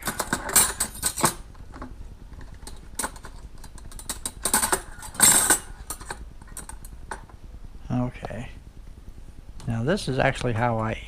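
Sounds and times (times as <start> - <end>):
cutlery rattling and clinking: 0.0 - 1.4, 2.6 - 7.2.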